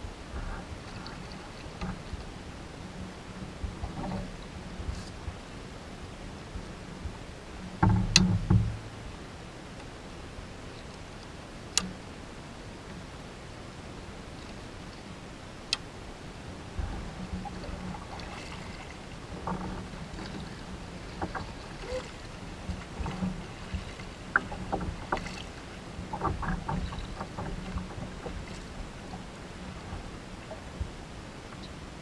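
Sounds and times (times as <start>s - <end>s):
paddle splashes and knocks: 6.5s - 9.0s, 16.6s - 31.7s.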